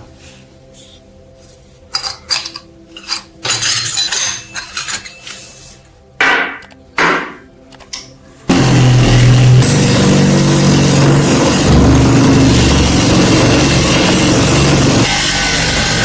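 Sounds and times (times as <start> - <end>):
metal tools clinking and knocking: 1.9 - 5.6
metal scraping on workbench: 2.0 - 5.8
power tool running: 8.5 - 16.0.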